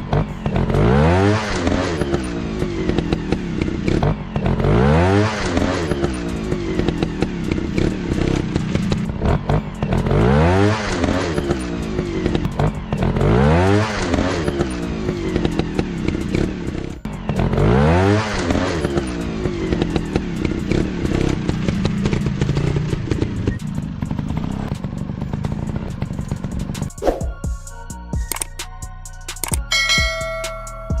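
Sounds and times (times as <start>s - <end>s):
dirt bike engine revving: 0.0s - 27.3s.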